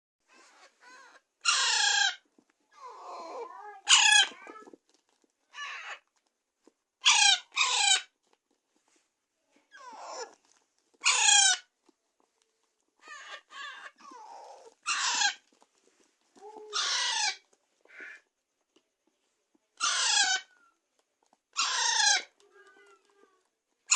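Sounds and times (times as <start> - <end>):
parakeet chicks screeching: 0.5 - 2.2, 3.8 - 4.6, 7.0 - 8.1, 11.0 - 11.6, 13.0 - 15.4, 16.7 - 18.2, 19.8 - 20.6, 21.6 - 23.1.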